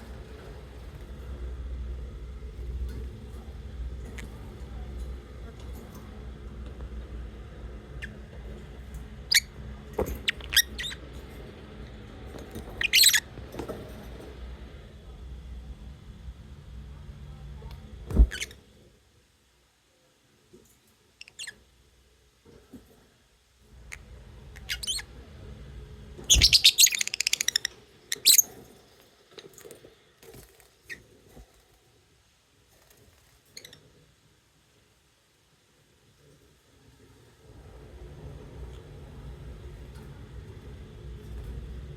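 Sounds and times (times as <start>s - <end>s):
lovebirds chirping and chattering: 7.8s - 9.6s, 10.2s - 11.2s, 12.5s - 13.3s, 23.8s - 25.2s, 26.2s - 28.5s
lovebirds chirping: 26.3s - 28.5s.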